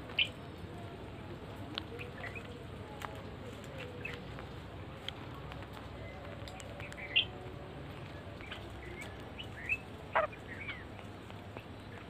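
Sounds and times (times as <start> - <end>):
birds chirping calls: 0.0 - 12.0
steady low hiss: 0.0 - 12.0.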